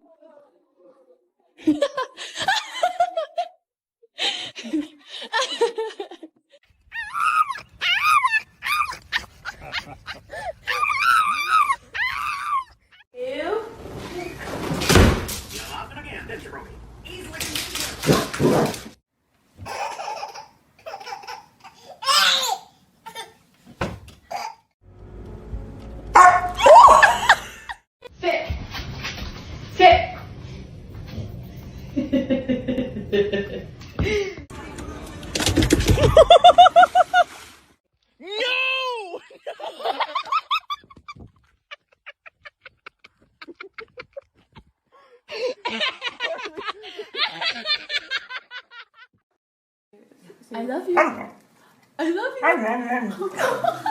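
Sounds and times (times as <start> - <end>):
high-pitched laughter: 7.0 - 13.0, 26.6 - 27.8.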